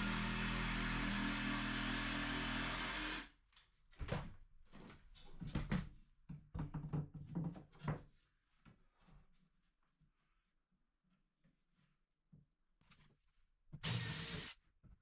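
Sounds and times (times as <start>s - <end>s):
power tool running: 0.0s - 3.3s, 13.8s - 14.5s.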